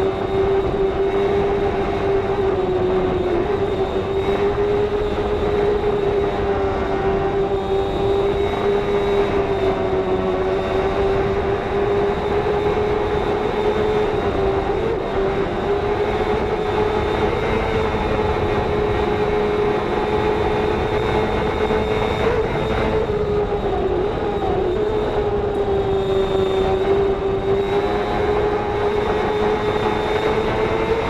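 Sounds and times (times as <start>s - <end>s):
motorcycle engine at high revs: 0.0s - 31.0s
wind rush: 0.0s - 31.0s.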